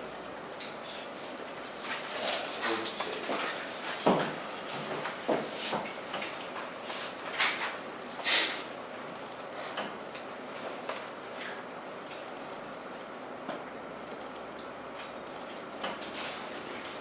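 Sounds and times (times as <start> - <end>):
keyboard and mouse clicks: 9.1 - 11.1, 12.0 - 16.0.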